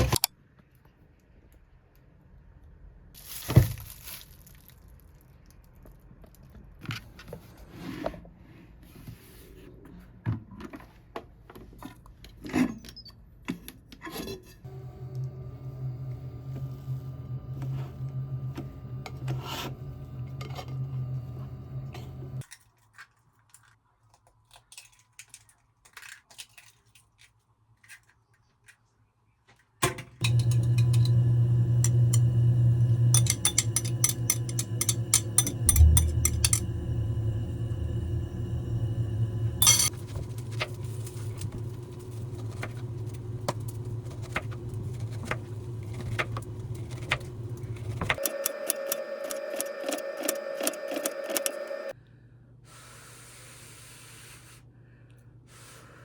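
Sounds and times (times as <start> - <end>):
steady low hum: 30.2 - 48.2.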